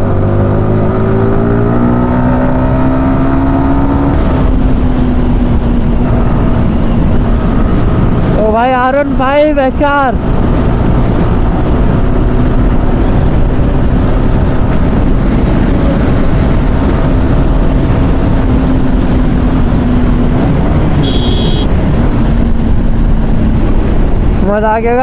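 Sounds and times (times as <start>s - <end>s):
motorcycle engine cruising: 0.0s - 25.0s
wind noise on microphone: 0.0s - 25.0s
short high-pitched beep: 21.0s - 21.7s.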